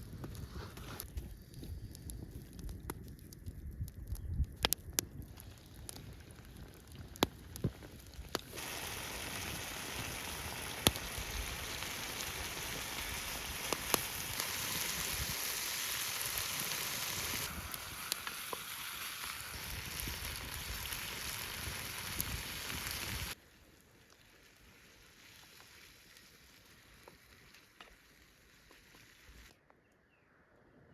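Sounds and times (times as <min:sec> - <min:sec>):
campfire crackling and popping: 0:00.0 - 0:29.5
food sizzling in a pan: 0:08.4 - 0:23.4, 0:24.9 - 0:29.5.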